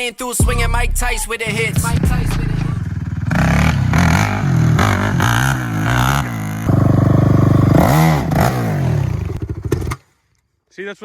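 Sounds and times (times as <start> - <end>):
pit bike engine revving: 1.4 - 10.0.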